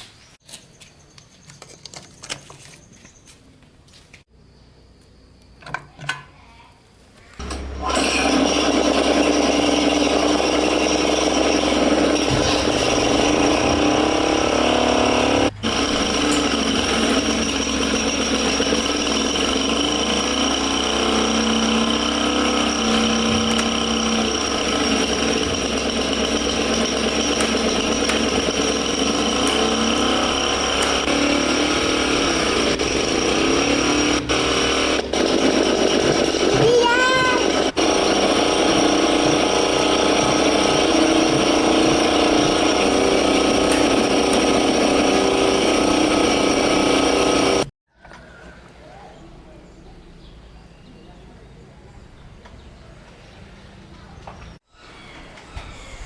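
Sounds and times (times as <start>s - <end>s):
diesel engine starting and running: 7.4s - 49.0s.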